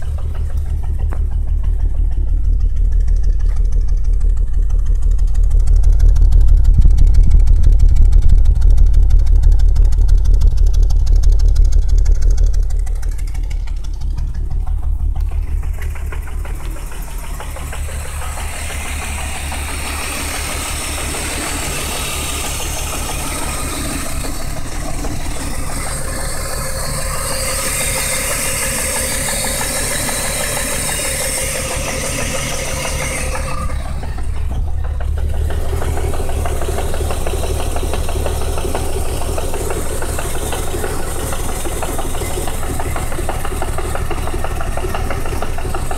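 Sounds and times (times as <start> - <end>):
car engine running: 0.0 - 45.9
engine knocking: 0.0 - 45.9
hiss: 15.4 - 45.9.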